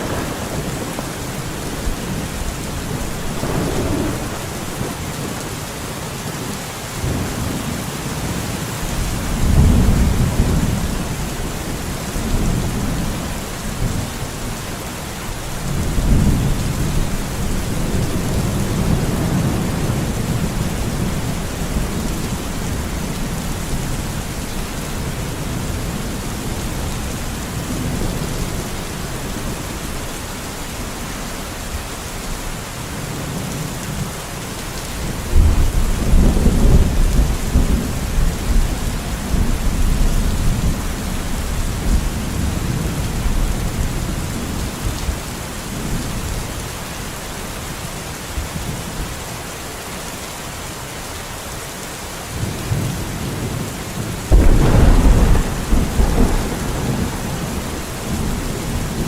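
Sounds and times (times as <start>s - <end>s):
thunder rumbling: 0.0s - 5.6s, 52.4s - 59.0s
steady rain: 0.0s - 59.0s.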